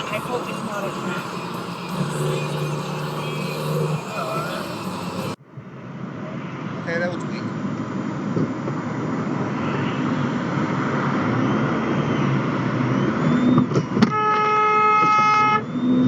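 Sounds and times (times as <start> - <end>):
car horn: 0.0 - 5.4, 14.0 - 15.6
car road noise: 0.0 - 6.8.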